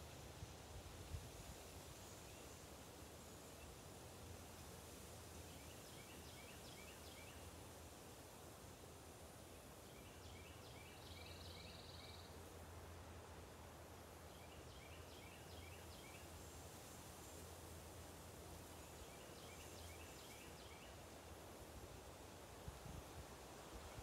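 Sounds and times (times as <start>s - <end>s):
faint bird singing: 5.4s - 7.5s, 9.8s - 12.5s, 14.2s - 16.5s, 18.6s - 21.1s.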